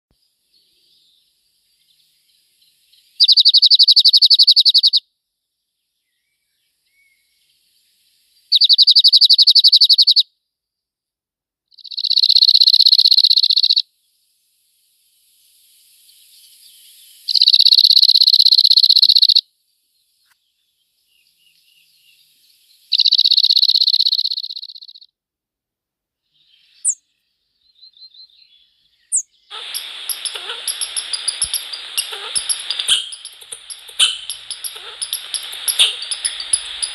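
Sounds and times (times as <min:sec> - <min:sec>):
songbird trilling: 0:03.2 - 0:05.0, 0:08.5 - 0:10.2, 0:11.8 - 0:13.8, 0:17.3 - 0:19.4, 0:22.9 - 0:25.0, 0:29.1 - 0:36.9
faint short chirps: 0:29.1 - 0:36.9.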